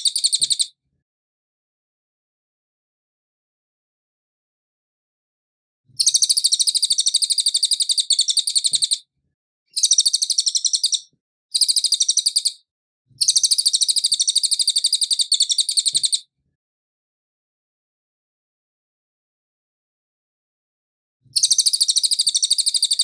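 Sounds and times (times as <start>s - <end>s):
songbird trilling: 6.0s - 9.0s, 9.7s - 12.6s, 13.2s - 16.2s, 21.4s - 23.0s.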